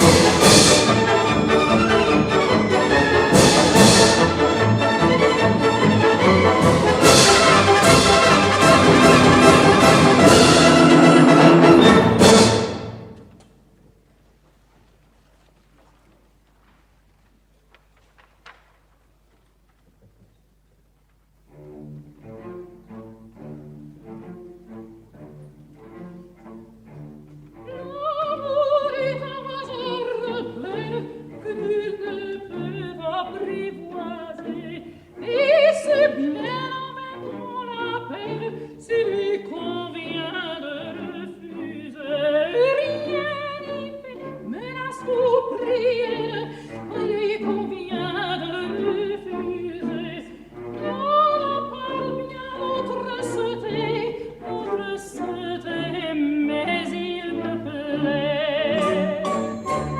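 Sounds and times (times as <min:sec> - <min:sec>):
operatic singing: 0:00.0 - 0:13.2, 0:27.6 - 0:59.9
orchestral accompaniment: 0:00.0 - 0:13.4, 0:21.4 - 0:59.9.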